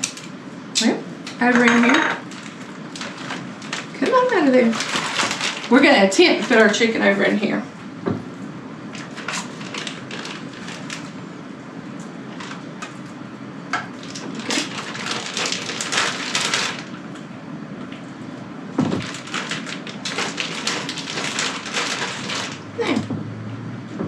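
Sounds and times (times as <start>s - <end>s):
plastic bag crinkling: 1.6s - 7.2s, 8.9s - 11.3s, 12.3s - 13.0s, 13.9s - 17.1s, 18.8s - 23.0s.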